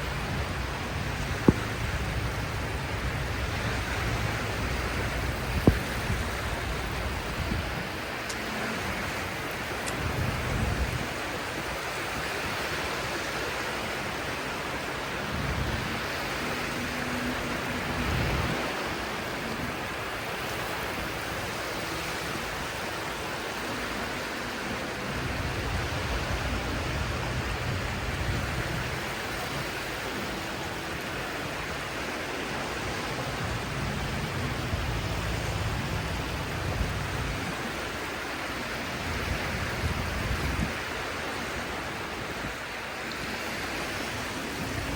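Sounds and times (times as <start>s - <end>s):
sea surf washing: 0.0s - 44.9s
low rumbles: 32.9s - 37.7s.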